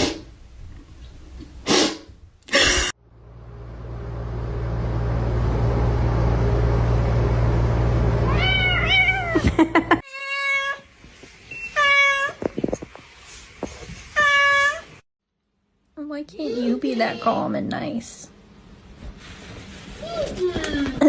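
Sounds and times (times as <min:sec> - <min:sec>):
low rumbling noise: 0:03.0 - 0:10.0
cat meowing: 0:08.3 - 0:09.5.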